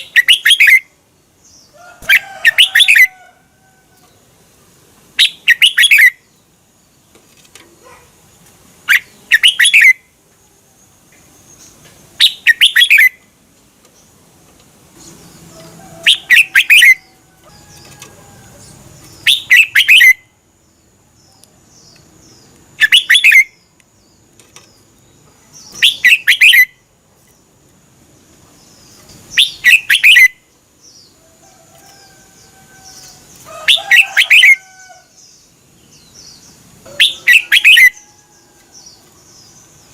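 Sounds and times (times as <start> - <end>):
bird singing whistled phrases: 0.0 - 0.9, 5.2 - 6.2, 8.9 - 10.0, 12.2 - 13.2, 16.0 - 17.1, 19.2 - 20.2, 22.8 - 23.6, 25.7 - 26.8, 29.3 - 30.4, 36.9 - 38.0.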